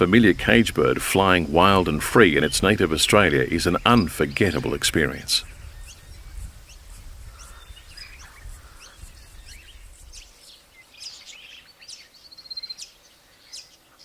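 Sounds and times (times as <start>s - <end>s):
low rumble: 0.0s - 6.6s
bird trill: 0.0s - 14.0s
birds chirping: 0.0s - 14.0s.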